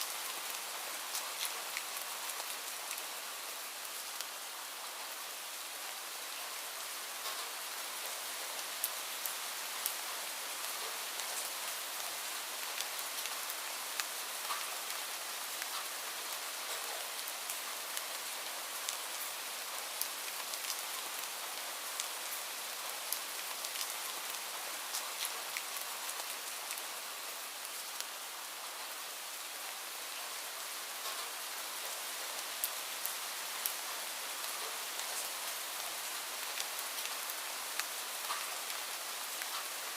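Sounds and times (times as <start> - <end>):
raindrops ticking on surfaces: 0.0 - 39.9
steady rain hiss: 0.0 - 39.9.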